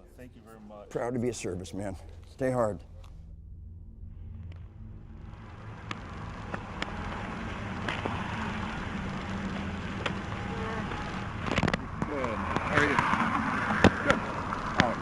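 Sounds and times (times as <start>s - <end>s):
vehicle engine hum and road noise: 5.2s - 15.0s.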